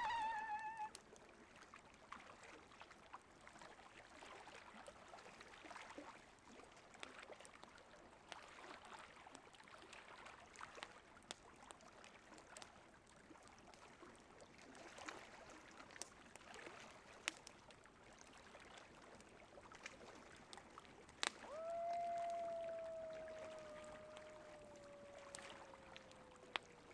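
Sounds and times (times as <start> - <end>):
coyote howling: 0.0 - 1.0, 21.4 - 26.9
campfire crackling and popping: 16.0 - 16.6, 17.2 - 26.9.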